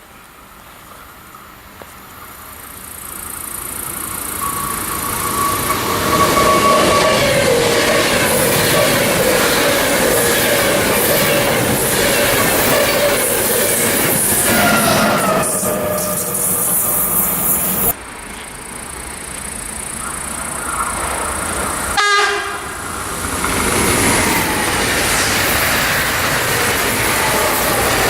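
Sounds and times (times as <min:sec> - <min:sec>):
train passing close by: 0:00.0 - 0:28.0
high whine: 0:03.0 - 0:23.3.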